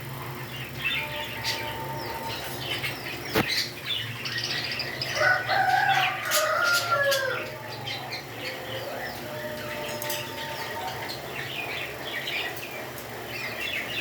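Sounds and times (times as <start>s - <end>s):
parrots chirping: 0.5s - 14.0s.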